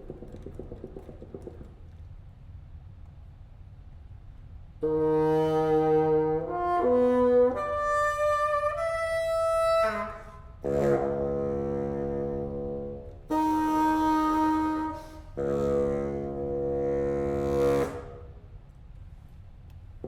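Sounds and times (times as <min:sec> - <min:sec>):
solo bassoon: 0:04.8 - 0:18.5.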